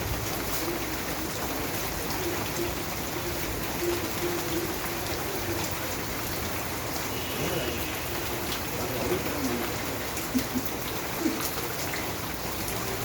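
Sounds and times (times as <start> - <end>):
rain hiss: 0.0 - 13.0
raindrops ticking on surfaces: 0.0 - 13.0.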